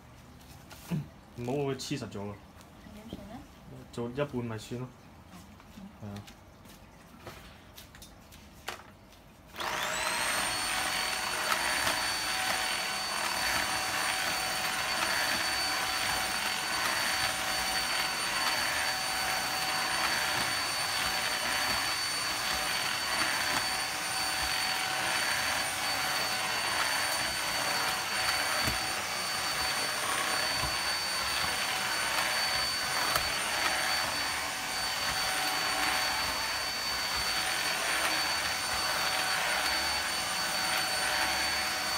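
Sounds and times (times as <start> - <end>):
handheld vacuum cleaner running: 9.5 - 41.9.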